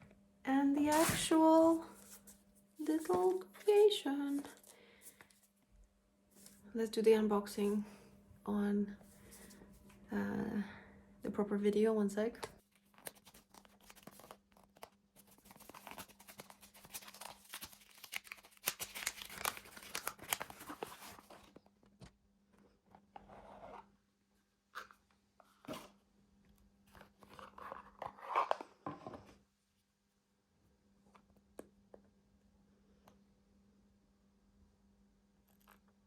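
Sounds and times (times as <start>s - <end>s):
faint steady hum: 0.0s - 13.1s
paper crinkling and tearing: 0.8s - 2.3s, 12.8s - 21.5s
packaging clicks: 15.6s - 21.2s.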